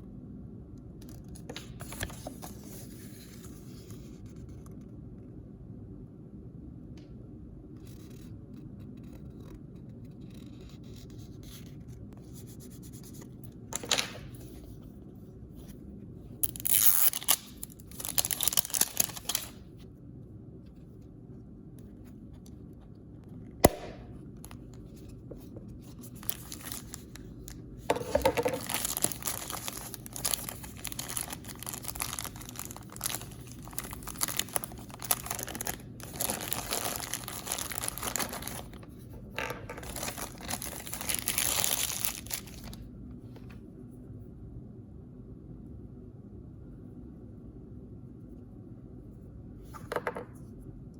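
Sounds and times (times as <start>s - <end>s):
plastic packaging tearing: 16.4s - 19.6s, 26.0s - 27.3s, 28.6s - 39.0s, 39.8s - 42.8s
packaging crinkling and rustling: 16.4s - 19.7s, 25.8s - 42.8s.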